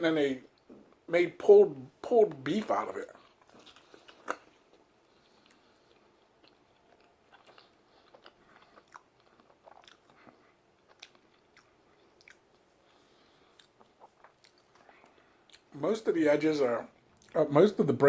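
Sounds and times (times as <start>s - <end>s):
faint mouth chewing: 3.1s - 15.7s.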